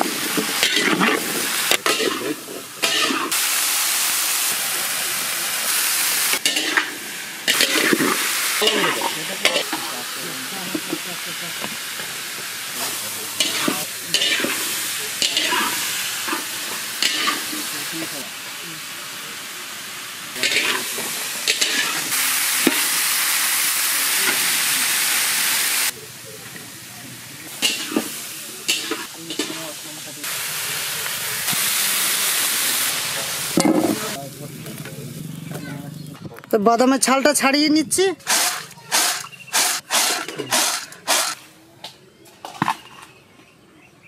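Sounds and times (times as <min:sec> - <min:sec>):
vegetables sizzling in oil: 0:00.0 - 0:35.4, 0:38.2 - 0:41.4
spatula stirring in pan: 0:00.4 - 0:03.4.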